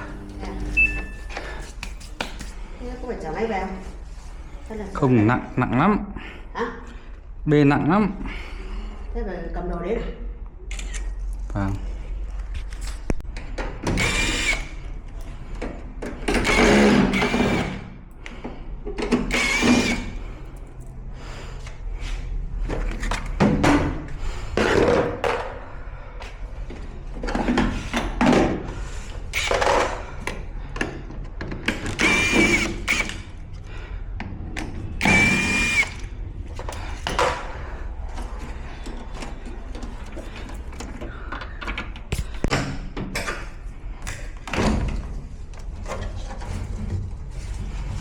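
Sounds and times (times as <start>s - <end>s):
power drill running in bursts: 13.9s - 14.8s, 16.3s - 17.8s, 19.3s - 20.2s, 29.3s - 29.9s, 31.9s - 33.3s, 35.0s - 36.1s.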